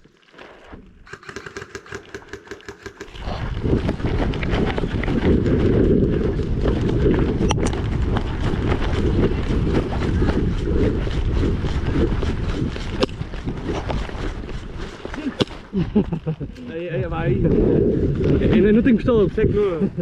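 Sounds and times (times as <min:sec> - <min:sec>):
scattered clicks: 0:01.0 - 0:03.2
wind buffeting microphone: 0:03.0 - 0:20.0.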